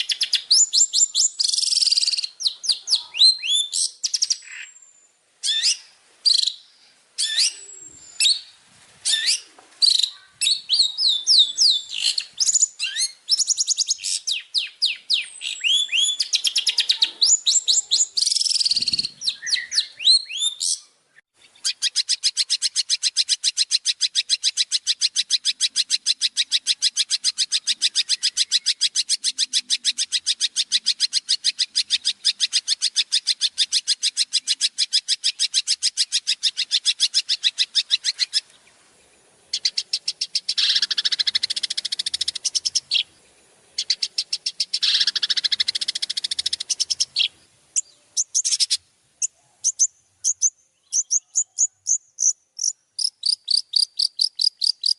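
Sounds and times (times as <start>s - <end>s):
short bird chirps: 0.0s - 23.4s, 43.8s - 54.9s
songbird high trill: 0.0s - 38.5s, 39.5s - 43.2s, 43.8s - 54.9s
rasping bursts of birdsong: 0.0s - 54.9s.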